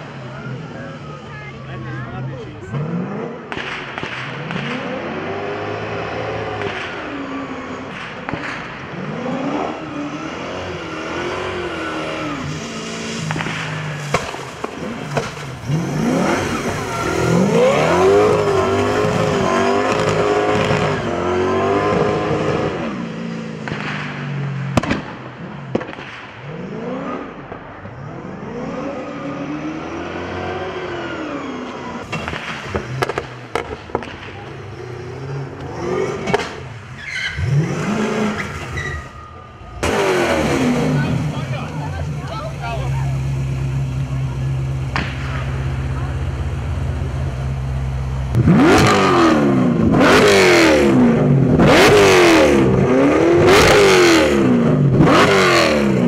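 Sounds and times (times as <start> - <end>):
car engine revving: 0.0 - 56.0
sharp exhaust pops: 3.4 - 5.1, 6.5 - 7.1, 7.9 - 8.9, 13.2 - 21.0, 23.6 - 26.5, 32.0 - 39.0, 44.6 - 50.4.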